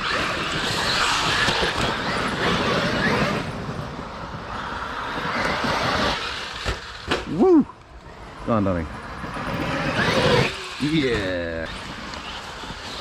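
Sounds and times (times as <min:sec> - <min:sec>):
electric motor whining: 0:00.0 - 0:03.8, 0:09.2 - 0:13.0
tyres rushing on ground: 0:00.0 - 0:13.0.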